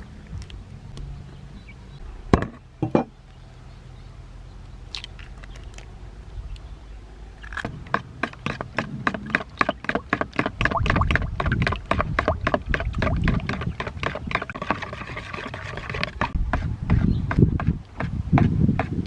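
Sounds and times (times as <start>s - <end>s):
water splashing: 7.5s - 16.4s.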